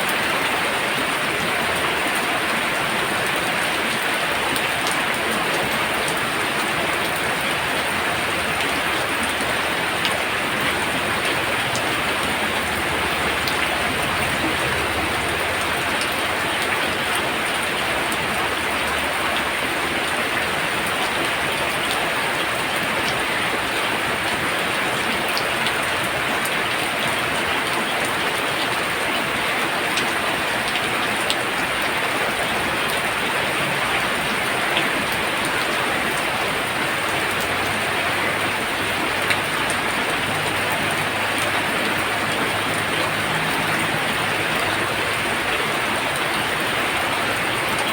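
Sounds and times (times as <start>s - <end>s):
heavy rain pouring: 0.0s - 47.9s
raindrop taps: 10.0s - 16.9s.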